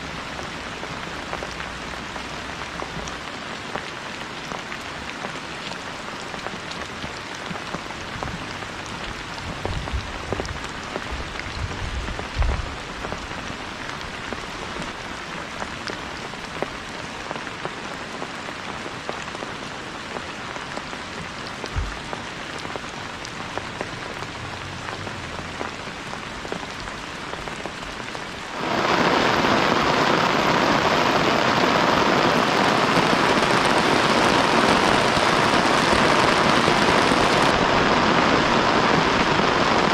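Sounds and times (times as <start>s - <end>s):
steady rain falling: 0.0s - 39.9s
dull low thumps: 21.7s - 22.1s.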